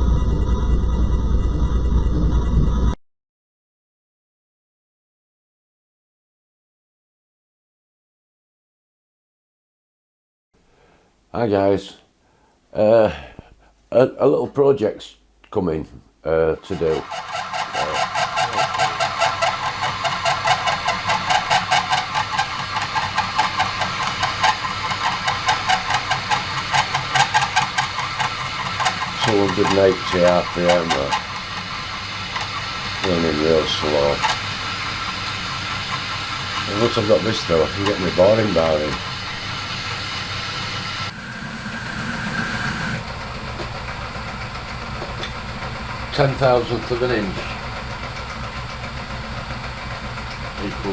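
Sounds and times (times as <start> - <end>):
lathe running: 16.6 - 50.9
rapid even ticking of drive: 16.7 - 50.9.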